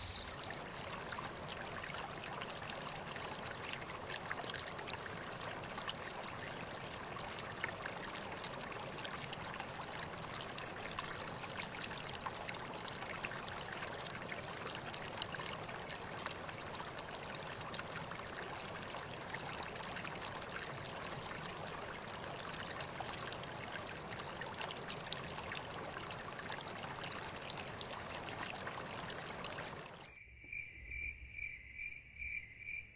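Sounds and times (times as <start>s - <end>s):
cricket chirping: 0.0s - 0.4s, 30.1s - 32.9s
stream water trickling: 0.0s - 30.2s.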